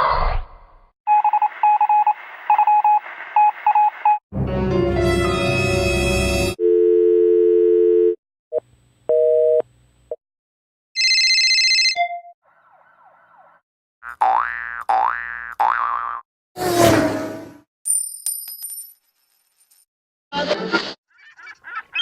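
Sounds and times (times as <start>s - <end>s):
telephone busy signal: 6.6s - 8.2s
telephone dial tone: 6.6s - 8.2s.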